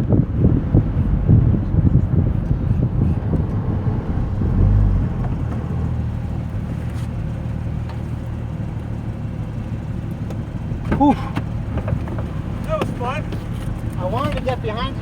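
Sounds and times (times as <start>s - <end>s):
tyre and wind noise: 0.0s - 8.7s
car engine at low revs: 0.0s - 15.0s.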